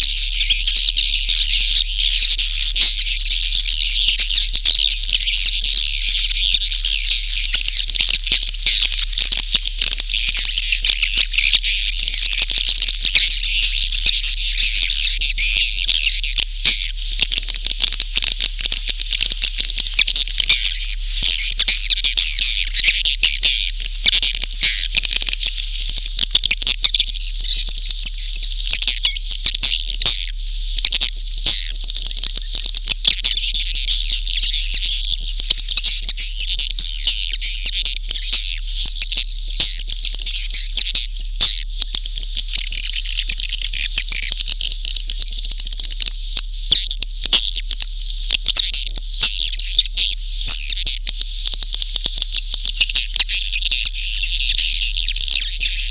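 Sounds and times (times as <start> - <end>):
swiftlets twittering and chirping: 0.0 - 55.9
sharp clicks: 17.2 - 20.6, 50.5 - 53.0.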